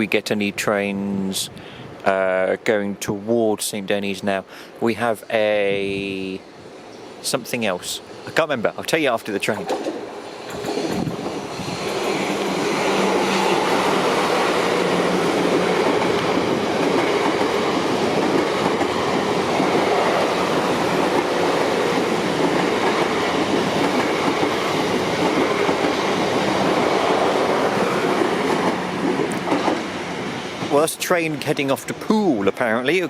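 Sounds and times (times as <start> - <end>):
train wheels rumbling on rails: 4.9 - 33.0
wheels clickety-clack: 9.6 - 13.7, 20.9 - 29.9.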